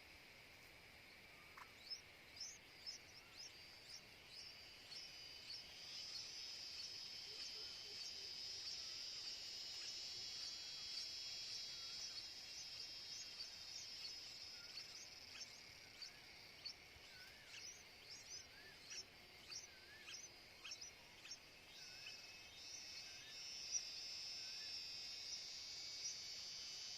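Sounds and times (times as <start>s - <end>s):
high insect drone: 0.0s - 26.9s
faint wavering bird calls: 1.0s - 26.9s.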